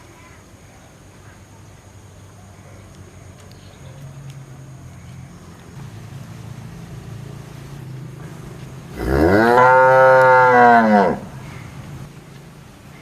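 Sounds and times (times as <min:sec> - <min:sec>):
cow mooing: 0:08.9 - 0:11.3.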